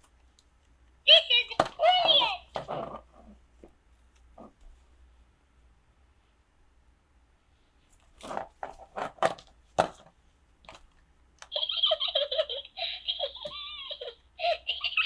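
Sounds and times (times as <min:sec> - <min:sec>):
person giggling: 0:11.5 - 0:15.0.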